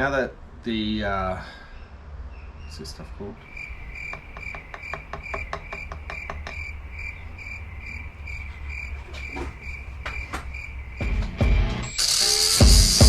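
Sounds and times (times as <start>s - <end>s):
cricket chirping: 3.4s - 13.0s
heavy knocks: 3.9s - 11.8s.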